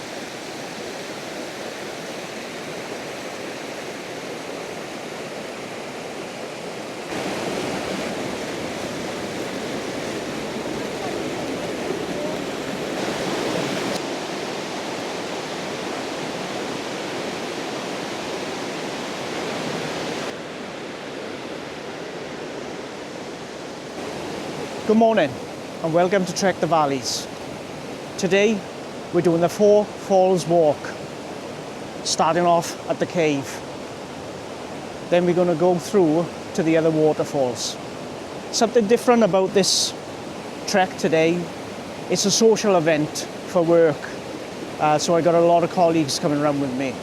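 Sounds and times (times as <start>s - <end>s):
waterfall rushing: 0.0s - 20.8s, 21.6s - 47.0s.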